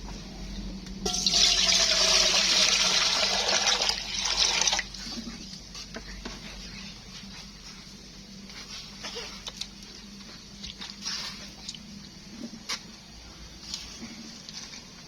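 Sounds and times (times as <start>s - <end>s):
water pouring: 1.1s - 5.0s.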